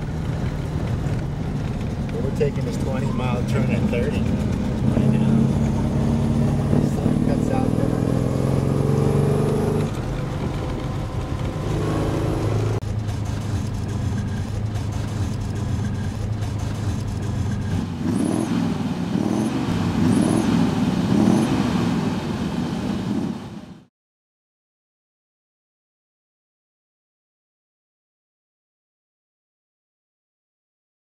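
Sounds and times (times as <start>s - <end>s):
steady cabin noise: 0.0s - 8.6s, 9.4s - 21.1s
car engine pitch rising: 0.0s - 23.6s.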